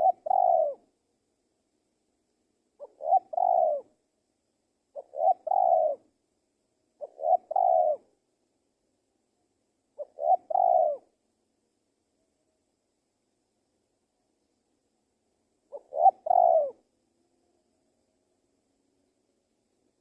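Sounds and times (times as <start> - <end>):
dove cooing: 0.0 - 0.9, 2.8 - 4.0, 4.9 - 6.1, 7.0 - 8.1, 10.0 - 11.2, 15.7 - 16.8.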